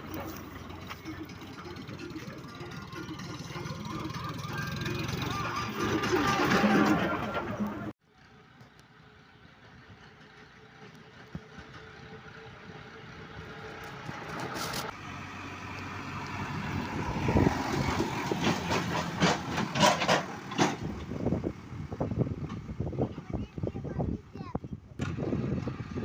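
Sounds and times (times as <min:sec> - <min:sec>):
tractor engine: 0:00.0 - 0:24.2, 0:24.9 - 0:26.0
trolley knocks and rattles: 0:18.0 - 0:21.1.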